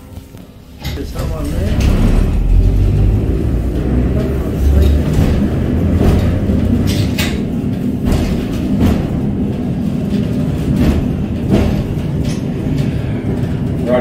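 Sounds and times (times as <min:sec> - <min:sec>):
tram rumbling on rails: 0:00.0 - 0:14.0
sharp rail clacks: 0:04.2 - 0:13.7.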